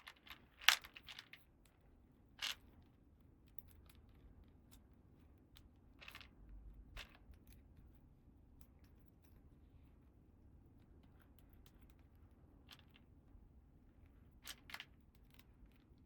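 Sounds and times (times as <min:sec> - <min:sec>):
plastic toy pieces rustling: 0:00.0 - 0:01.4.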